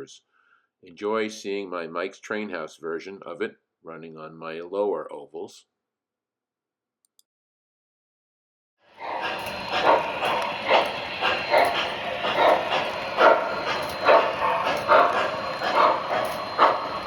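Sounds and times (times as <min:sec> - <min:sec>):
model train chuffing: 0:08.9 - 0:17.0
steady high whine: 0:09.0 - 0:17.0.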